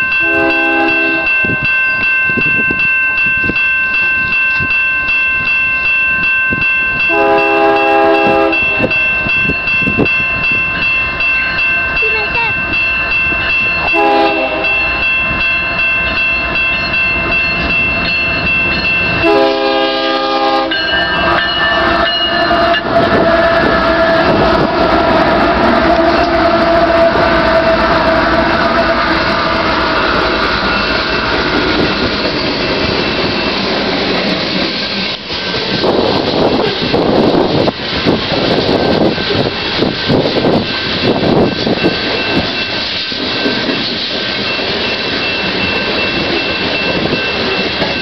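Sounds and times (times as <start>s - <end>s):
diesel locomotive engines rumbling: 0.0s - 48.0s
freight cars rolling on rails: 0.0s - 48.0s
train air horn: 0.2s - 1.4s, 7.1s - 9.0s, 13.9s - 14.9s, 19.2s - 20.8s, 25.8s - 30.0s.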